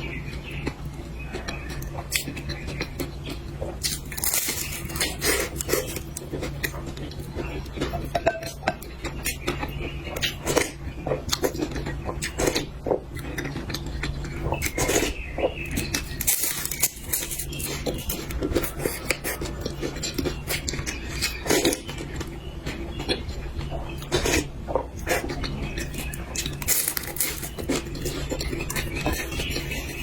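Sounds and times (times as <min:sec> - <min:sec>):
steady low hum: 0:00.0 - 0:30.0
utensils clinking against bowls: 0:07.8 - 0:08.9.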